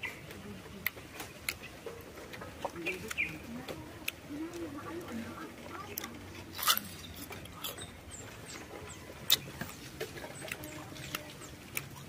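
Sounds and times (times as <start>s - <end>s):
crunchy chewing of mango: 5.8s - 12.0s.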